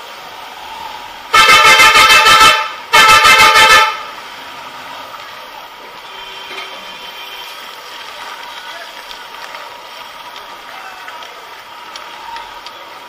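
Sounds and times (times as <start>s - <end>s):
engine and street noise: 0.0s - 13.0s
motorcycle horn honking: 1.3s - 4.1s, 6.0s - 7.5s.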